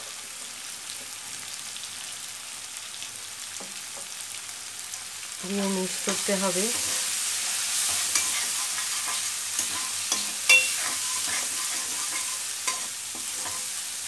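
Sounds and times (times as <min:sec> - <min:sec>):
food sizzling in a wok: 0:00.0 - 0:14.0
spatula scraping a pan: 0:06.1 - 0:14.0
spatula tapping the pan: 0:09.1 - 0:13.6
sharp metal clink: 0:10.5 - 0:10.9.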